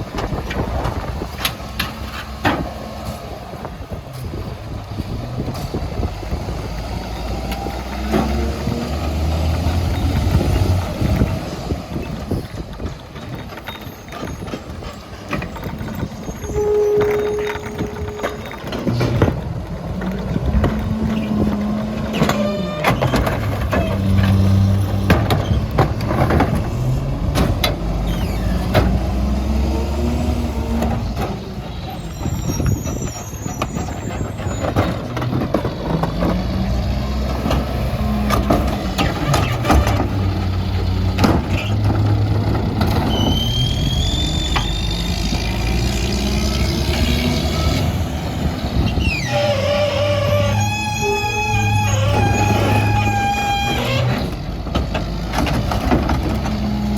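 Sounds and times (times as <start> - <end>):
garbage truck diesel engine revving: 0.0 - 13.1, 14.2 - 56.9
clanks and bangs: 12.0 - 29.4, 32.2 - 43.8
brief high squeal: 16.0 - 18.6, 31.9 - 34.6, 43.1 - 45.1, 48.9 - 54.2.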